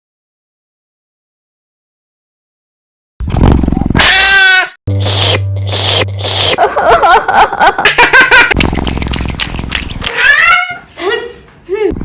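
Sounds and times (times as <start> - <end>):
laughter: 6.6 - 8.6.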